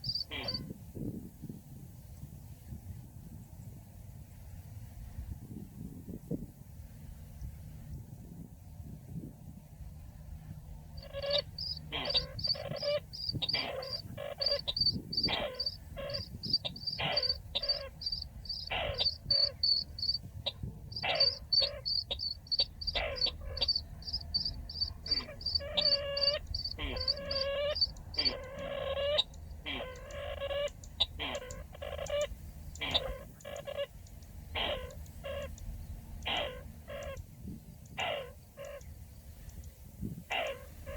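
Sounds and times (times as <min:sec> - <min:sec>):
bird harsh call notes: 0:00.0 - 0:00.6, 0:11.0 - 0:20.2, 0:20.9 - 0:33.9.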